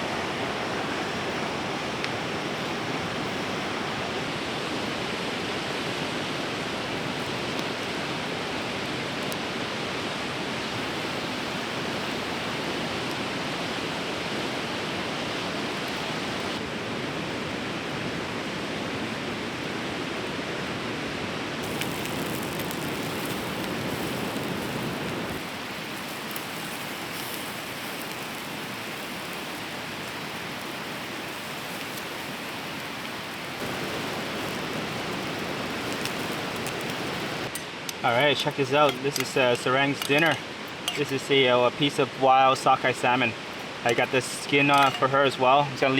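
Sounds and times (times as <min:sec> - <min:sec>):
river rushing: 0:00.0 - 0:16.8, 0:21.0 - 0:45.9.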